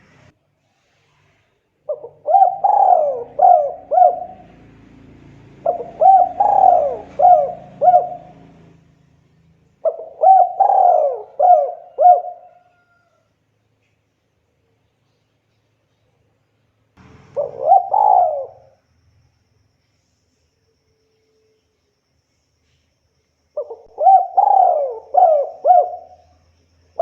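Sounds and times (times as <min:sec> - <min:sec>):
dove cooing: 0:01.9 - 0:08.8, 0:09.8 - 0:13.0, 0:17.0 - 0:18.8, 0:23.6 - 0:26.4.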